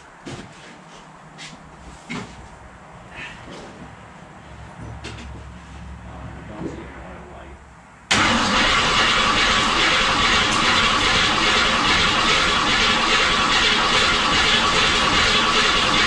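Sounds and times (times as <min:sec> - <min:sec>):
starter motor cranking engine: 0:08.1 - 0:16.0.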